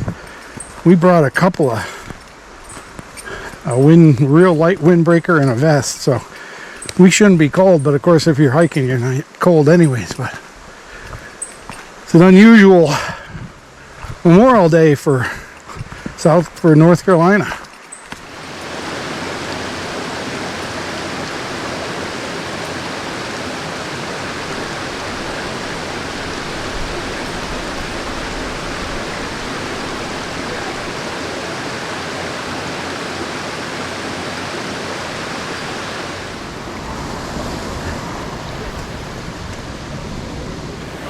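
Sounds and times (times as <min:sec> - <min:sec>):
waterfall rushing: 0:18.2 - 0:41.0.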